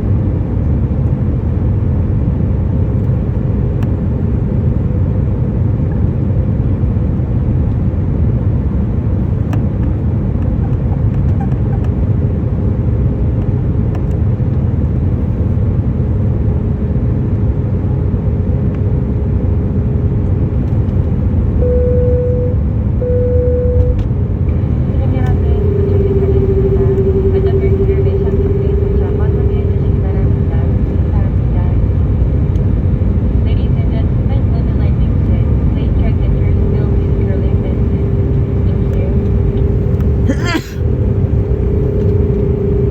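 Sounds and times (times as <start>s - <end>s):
airplane cabin engine rumble: 0.0s - 42.9s
faint steady hum: 15.1s - 42.9s
short tones: 21.6s - 31.4s.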